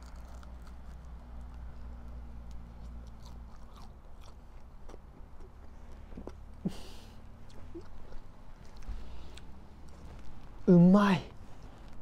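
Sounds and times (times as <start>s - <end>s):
low steady rumble: 0.0s - 12.0s
wet mouth clicks chewing: 2.4s - 6.4s.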